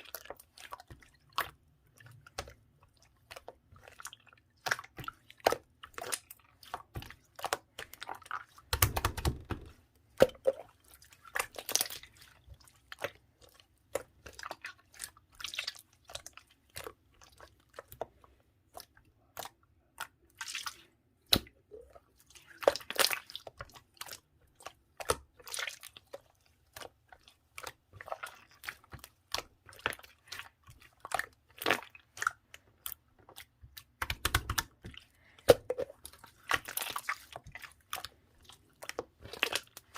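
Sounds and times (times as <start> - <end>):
slime squelch: 0.0 - 39.9.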